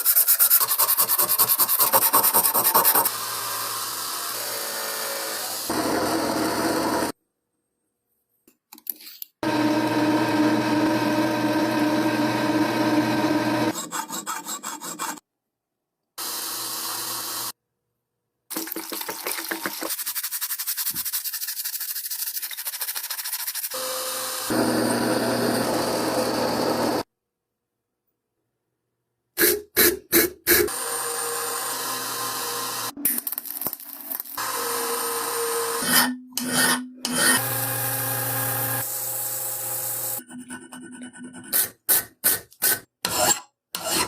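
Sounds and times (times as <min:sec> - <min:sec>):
rubbing and sanding: 0:00.0 - 0:03.1, 0:13.7 - 0:15.2, 0:19.5 - 0:23.8
power tool running: 0:02.7 - 0:07.2, 0:09.4 - 0:13.8, 0:16.2 - 0:17.6, 0:23.7 - 0:27.1, 0:30.7 - 0:33.0, 0:34.4 - 0:35.9, 0:37.0 - 0:40.2.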